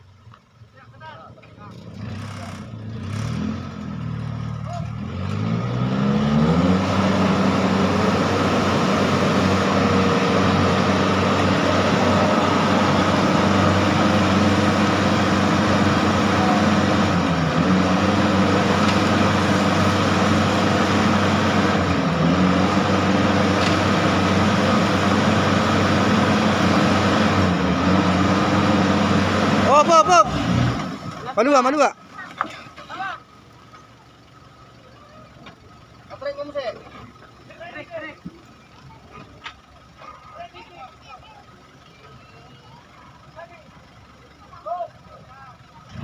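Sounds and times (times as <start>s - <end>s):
engine at high revs: 1.6s - 31.9s.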